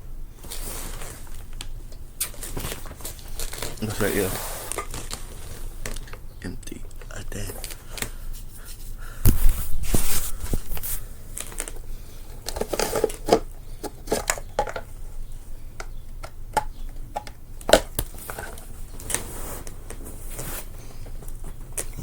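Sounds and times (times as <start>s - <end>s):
short rustles: 8.4s - 11.7s.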